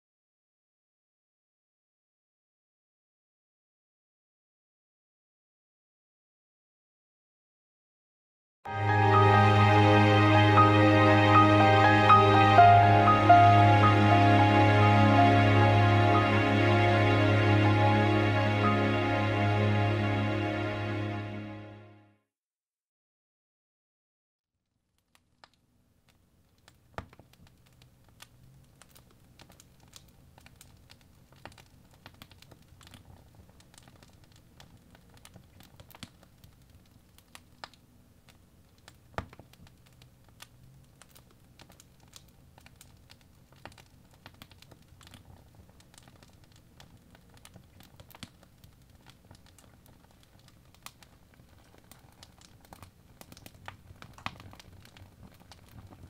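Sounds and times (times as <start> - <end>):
logs crackling in fireplace: 25.0 - 56.0
low rumble of flames: 26.6 - 56.0.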